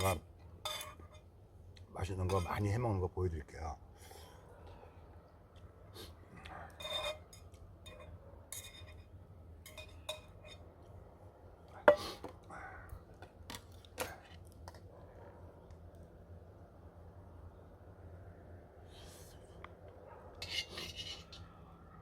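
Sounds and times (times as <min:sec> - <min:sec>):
utensils clinking and scraping dishes: 0:06.7 - 0:09.1, 0:20.4 - 0:21.4.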